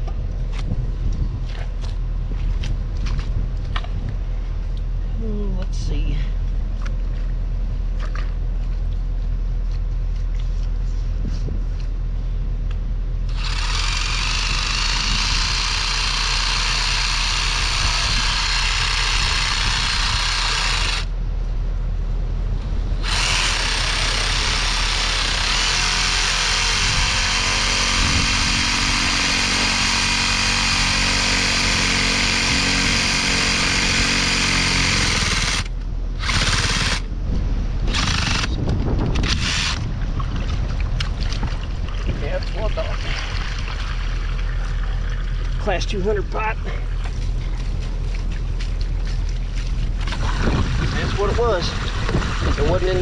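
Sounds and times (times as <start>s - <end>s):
steady low hum: 0.0s - 53.0s
power tool cutting pipe: 13.3s - 21.1s, 23.0s - 37.1s, 39.2s - 39.8s.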